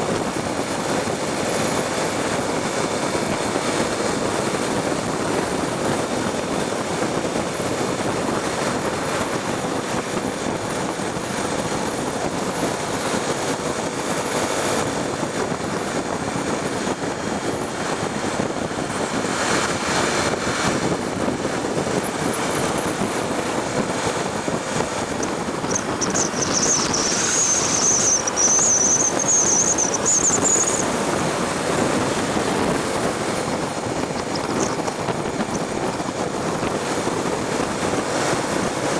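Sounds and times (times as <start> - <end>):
wind and road noise: 0.0 - 38.9
motorcycle engine cruising: 22.2 - 37.4
high wavering whistle: 25.1 - 31.2.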